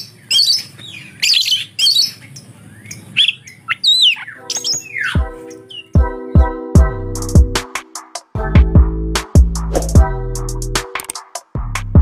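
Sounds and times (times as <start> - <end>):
bird chirping and whistling: 0.0 - 6.0
background music with deep beat: 5.1 - 12.0.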